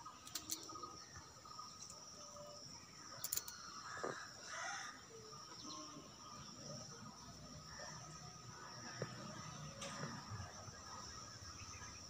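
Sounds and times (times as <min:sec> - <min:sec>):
faint bird calls: 0:03.2 - 0:06.8.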